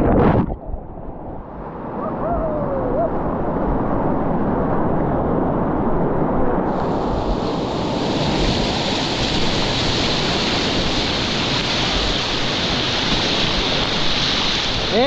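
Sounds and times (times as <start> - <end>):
whitewater rushing in river rapid: 6.3 - 15.0.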